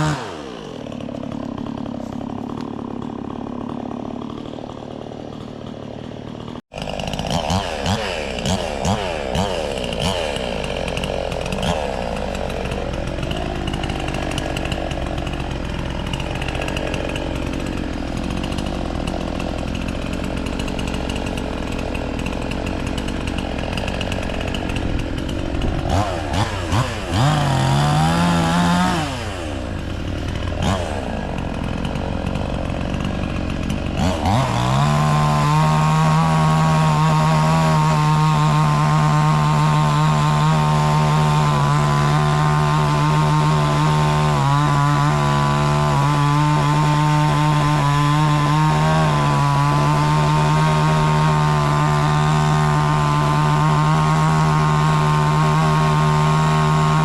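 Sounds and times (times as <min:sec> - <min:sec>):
gas chainsaw revving: 0:00.0 - 0:57.0.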